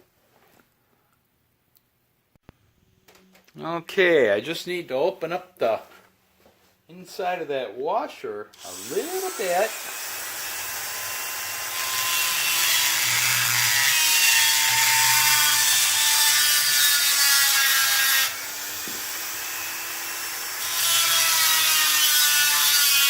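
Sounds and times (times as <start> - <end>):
power tool grinding steel: 8.6 - 23.0.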